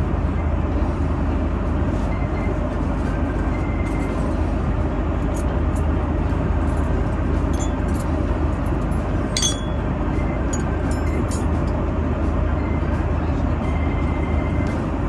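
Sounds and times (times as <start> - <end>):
airliner cabin noise: 0.1 - 15.0
cutlery and dishes clinking: 7.5 - 8.1, 9.4 - 9.9, 10.5 - 11.8.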